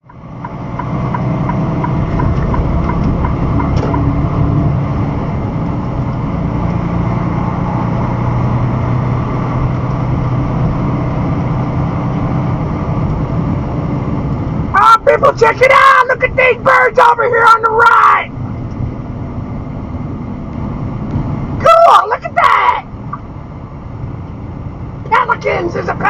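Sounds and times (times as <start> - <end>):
light regular ticking: 0.0 - 4.4
truck engine and road noise: 0.0 - 26.0.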